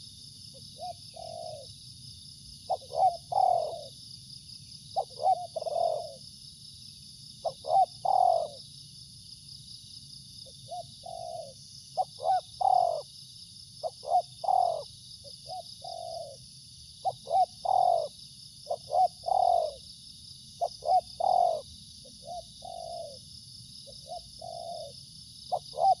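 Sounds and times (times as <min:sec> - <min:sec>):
dove cooing: 0:00.8 - 0:01.7, 0:02.7 - 0:03.9, 0:05.0 - 0:06.2, 0:07.4 - 0:08.6, 0:10.7 - 0:13.1, 0:13.8 - 0:16.4, 0:17.0 - 0:19.8, 0:20.6 - 0:23.2, 0:23.9 - 0:26.0.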